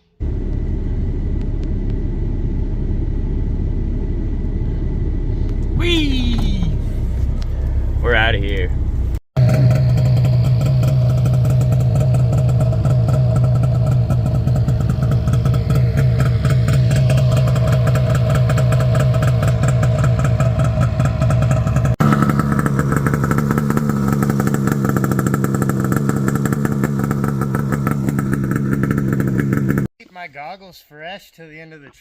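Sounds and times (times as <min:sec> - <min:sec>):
snowmobile engine running: 0:00.3 - 0:29.9.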